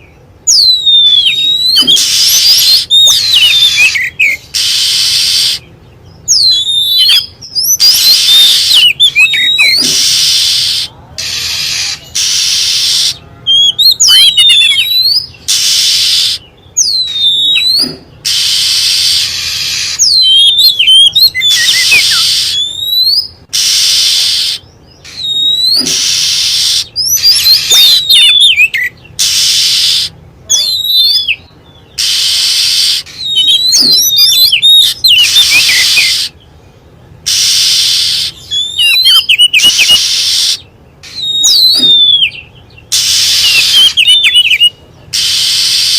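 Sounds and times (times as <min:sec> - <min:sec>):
bird whistled song: 0:00.0 - 0:36.6, 0:37.2 - 0:45.9
bird harsh hissing churrs: 0:01.8 - 0:02.9, 0:04.5 - 0:05.6, 0:09.6 - 0:13.2, 0:15.5 - 0:16.4, 0:17.7 - 0:20.1, 0:21.6 - 0:22.6, 0:23.5 - 0:28.1, 0:29.2 - 0:30.2, 0:32.0 - 0:34.2, 0:35.0 - 0:36.4, 0:37.2 - 0:38.4, 0:39.6 - 0:41.9, 0:42.9 - 0:44.1, 0:45.1 - 0:45.9.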